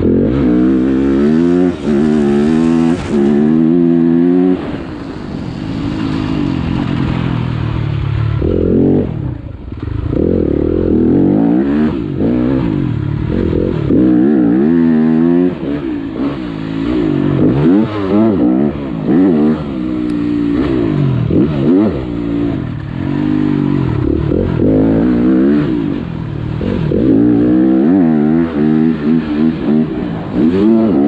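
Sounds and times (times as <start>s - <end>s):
motocross bike engine revving: 0.0s - 31.0s.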